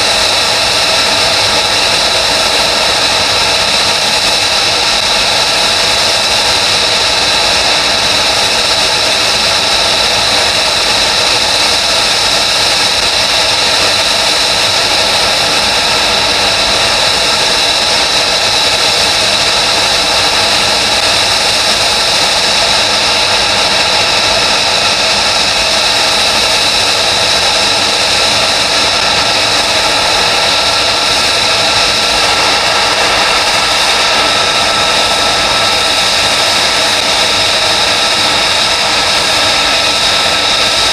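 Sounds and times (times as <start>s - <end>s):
jet engine running: 0.0s - 40.9s.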